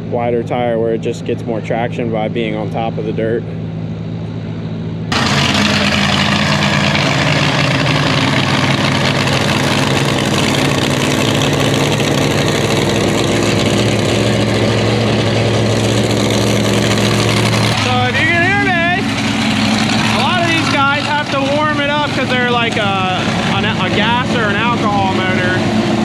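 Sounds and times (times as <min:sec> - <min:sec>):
tractor engine idling: 0:05.1 - 0:26.0.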